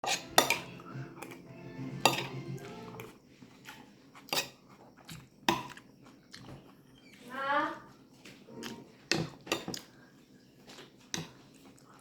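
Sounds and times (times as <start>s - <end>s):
cutlery clinking on dishes: 0.0s - 1.4s, 2.0s - 2.4s, 4.3s - 4.6s, 8.5s - 9.9s
faint music: 0.0s - 4.0s, 6.5s - 12.0s.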